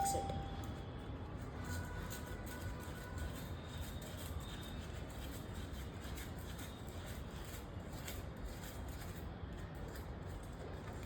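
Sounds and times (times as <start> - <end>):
low background hum: 0.0 - 3.4.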